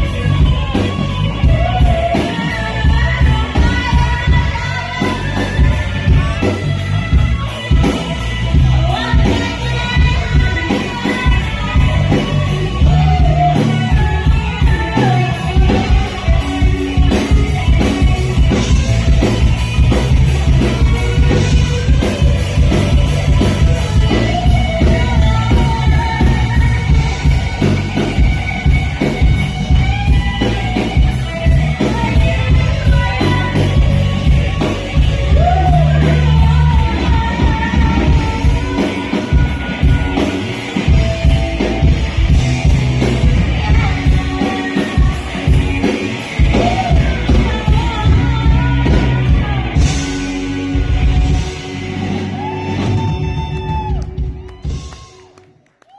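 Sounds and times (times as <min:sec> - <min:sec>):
rock band playing: 0:00.0 - 0:55.9
lead vocal singing: 0:20.6 - 0:27.7, 0:31.4 - 0:41.1, 0:43.2 - 0:54.0.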